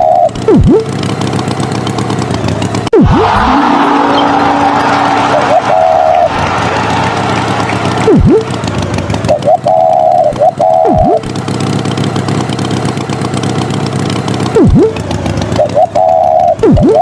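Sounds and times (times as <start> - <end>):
cartoon engine hum: 0.0 - 17.0
quick pitch swoop: 3.0 - 6.4.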